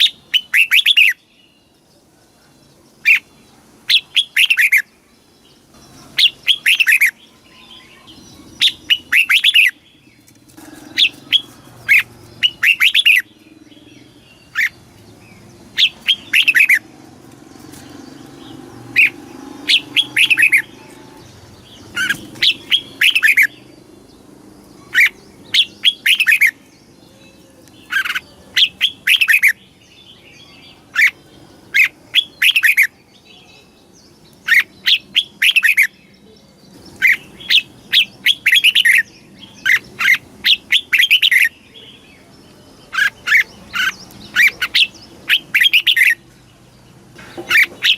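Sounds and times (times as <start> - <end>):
bird singing short phrases: 3.9 - 16.9.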